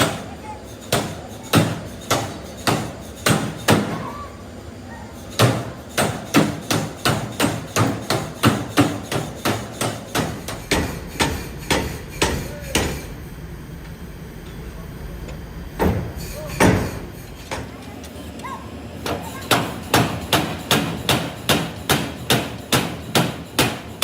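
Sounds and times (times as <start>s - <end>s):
hammer blows on metal: 5.3s - 13.0s.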